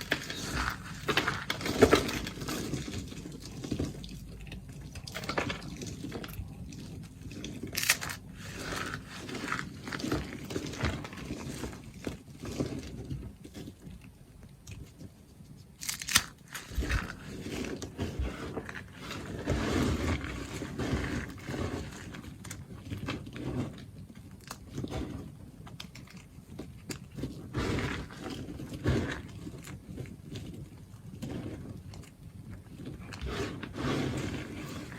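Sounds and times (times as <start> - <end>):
knife cutting through soap: 15.8 - 34.9.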